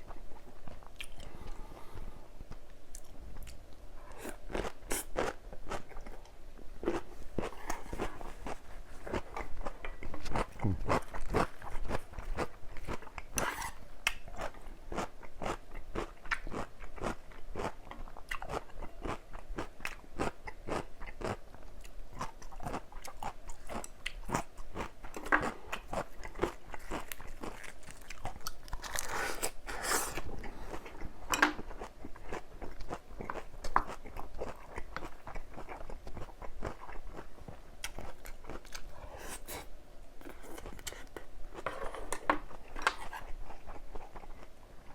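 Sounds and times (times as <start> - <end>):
chewing crunchy vegetables: 2.9 - 44.9.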